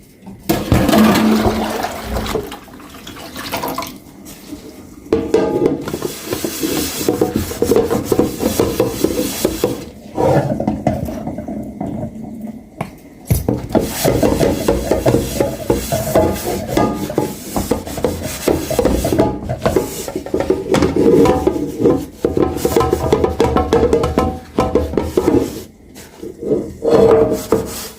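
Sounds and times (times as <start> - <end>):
dishes being scrubbed: 5.2 - 10.7, 13.7 - 27.9
knock: 22.3 - 25.5.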